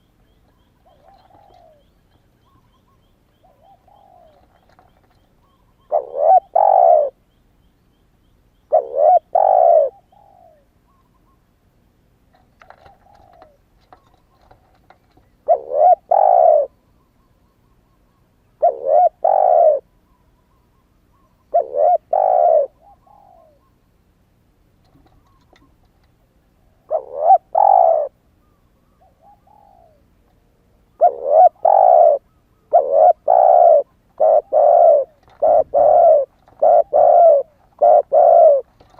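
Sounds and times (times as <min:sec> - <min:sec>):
dove cooing: 0:00.6 - 0:07.2, 0:08.7 - 0:10.7, 0:12.3 - 0:16.8, 0:18.6 - 0:19.9, 0:21.1 - 0:23.8, 0:26.8 - 0:30.2, 0:30.9 - 0:38.9.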